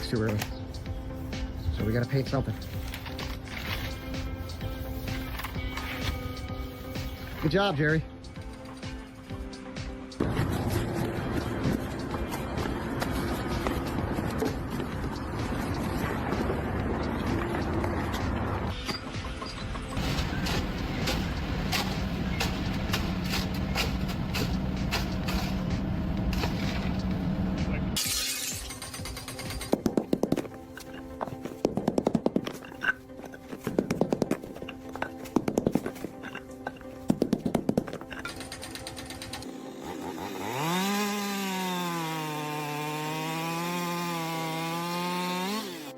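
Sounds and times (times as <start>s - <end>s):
power tool motor spinning: 38.8s - 45.9s
hissing cutting noise: 39.0s - 45.9s.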